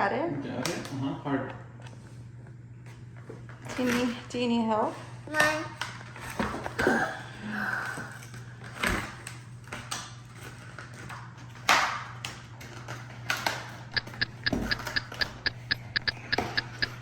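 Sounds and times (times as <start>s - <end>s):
rapid short high beeps: 13.9s - 17.0s.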